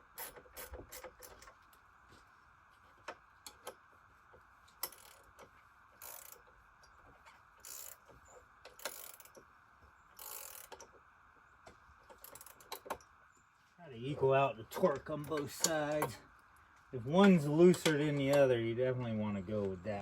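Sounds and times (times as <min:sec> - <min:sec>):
wrench clicks: 0:00.1 - 0:01.6, 0:04.8 - 0:06.5, 0:07.6 - 0:09.4, 0:10.2 - 0:11.0, 0:12.1 - 0:13.1, 0:14.7 - 0:16.2
wrench rattling strokes: 0:03.0 - 0:13.2.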